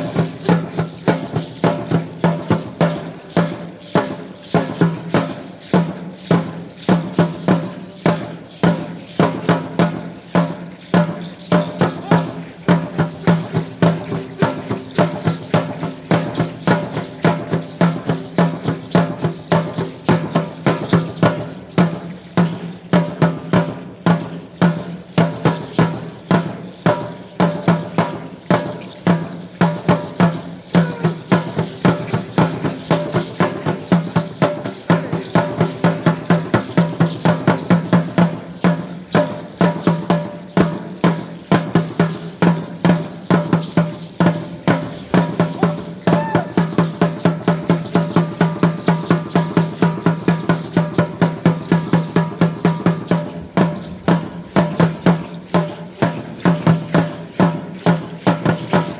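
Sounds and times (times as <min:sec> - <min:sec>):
drum beaten in fast rhythm: 0:00.0 - 0:58.9.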